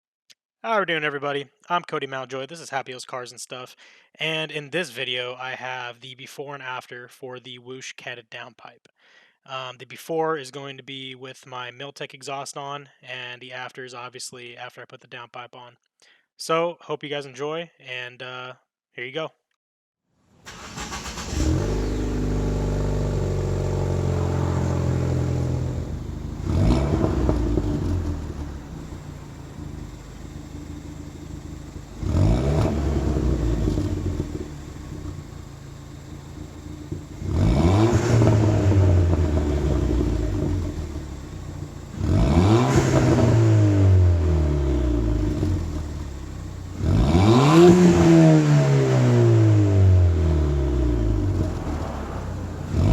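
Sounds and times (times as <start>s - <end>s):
car engine idling and revving: 20.5s - 52.9s.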